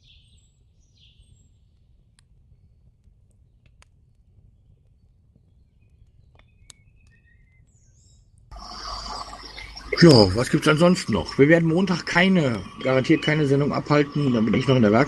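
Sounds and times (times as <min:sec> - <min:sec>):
faint bird-like chirps: 0:04.6 - 0:11.4
low hum: 0:08.5 - 0:15.0.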